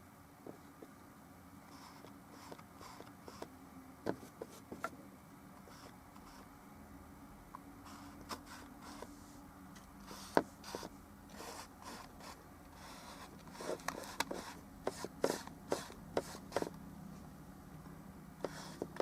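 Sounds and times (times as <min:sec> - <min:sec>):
faint steady hum: 0:00.0 - 0:19.0
brush scraping and dabbing paint: 0:07.8 - 0:09.4, 0:10.0 - 0:16.8, 0:18.4 - 0:19.0.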